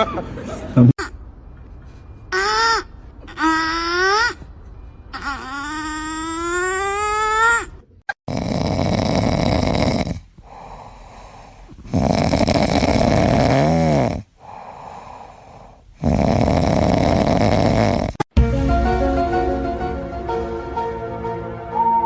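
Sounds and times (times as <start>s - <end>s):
loud snoring: 8.3s - 18.3s
quiet breathing: 10.1s - 12.0s, 14.2s - 16.0s
whistling snore tone: 16.0s - 18.2s.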